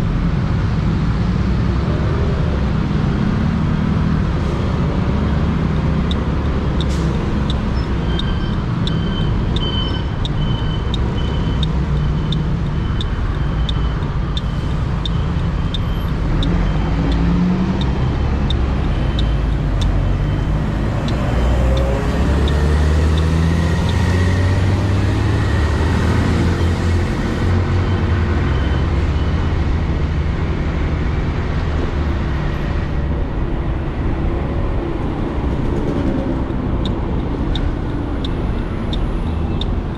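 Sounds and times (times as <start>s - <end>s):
regular high ticking: 5.8s - 26.0s.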